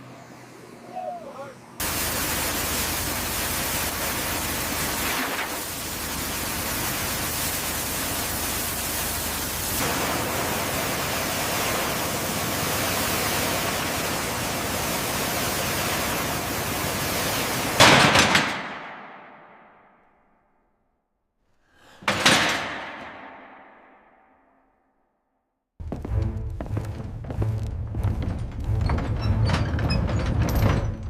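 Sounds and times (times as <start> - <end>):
pressure washer water jet hissing: 1.8 - 17.9.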